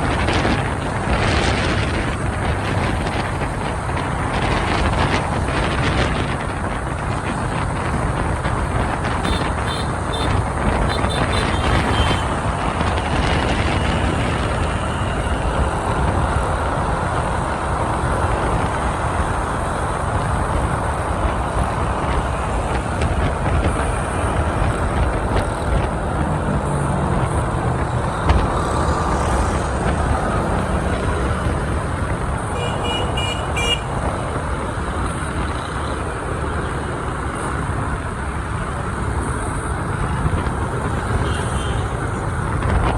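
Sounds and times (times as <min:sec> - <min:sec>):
motorbike engines: 0:00.0 - 0:42.9
tyres and wind noise: 0:00.0 - 0:42.9
short horn beeps: 0:32.6 - 0:33.9.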